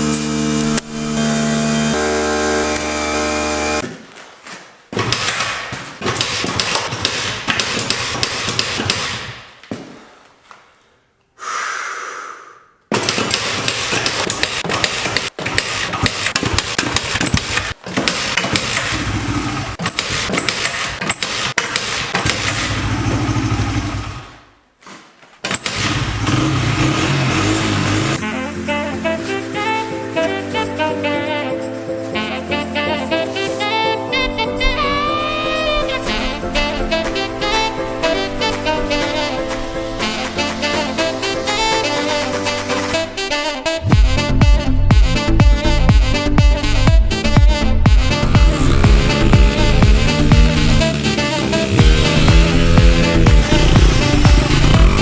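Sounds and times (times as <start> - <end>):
dirt bike engine revving: 18.7 - 19.8, 22.3 - 24.4, 25.7 - 28.9, 47.9 - 55.0
music: 28.2 - 55.0.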